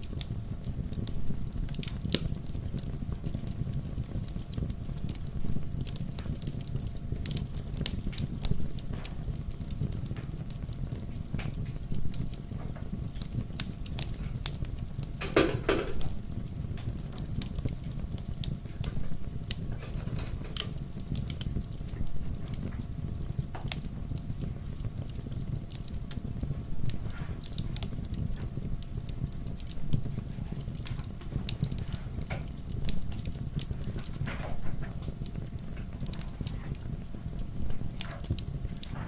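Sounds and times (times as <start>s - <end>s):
fire low rumble: 0.0s - 39.0s
wood fire crackling and popping: 0.0s - 39.0s.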